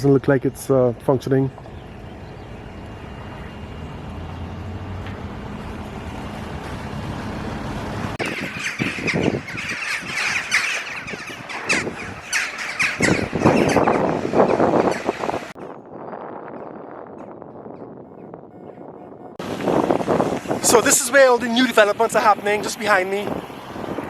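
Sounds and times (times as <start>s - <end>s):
low hum: 0.4s - 8.7s
harsh bird calls: 8.2s - 15.6s.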